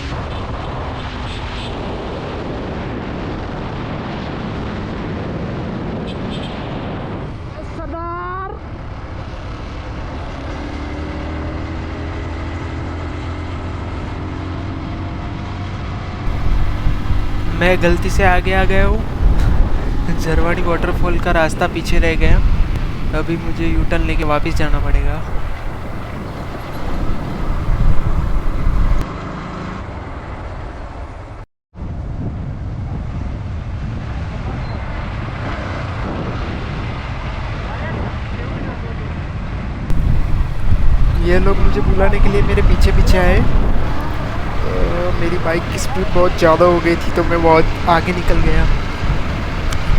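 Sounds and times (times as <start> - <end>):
motorcycle engine drone: 16.3 - 29.0, 39.9 - 49.9
wind rumble on microphone: 16.3 - 29.0, 31.8 - 49.9.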